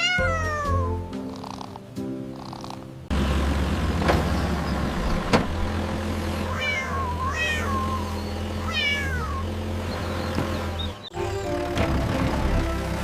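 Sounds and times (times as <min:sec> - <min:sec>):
cat meowing: 0:00.0 - 0:01.1, 0:06.5 - 0:09.5.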